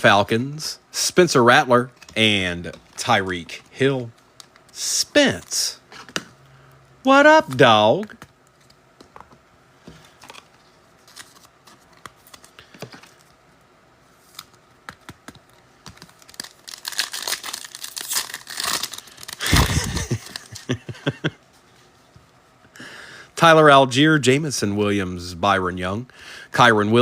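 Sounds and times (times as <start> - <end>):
foil pack crinkling and tearing: 10.1 - 13.2, 15.4 - 20.8.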